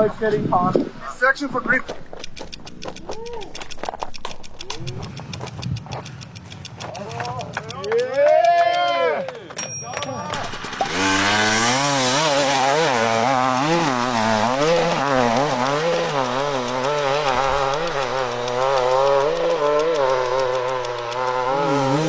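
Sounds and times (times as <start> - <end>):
dirt bike engine revving: 10.3 - 22.0.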